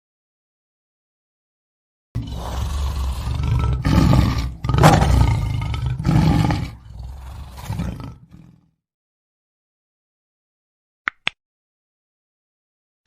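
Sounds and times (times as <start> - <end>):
lion roaring: 2.2 - 8.7.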